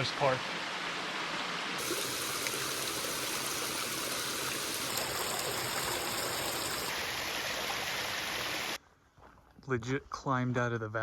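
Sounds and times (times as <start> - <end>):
waterfall rushing: 1.8 - 8.8.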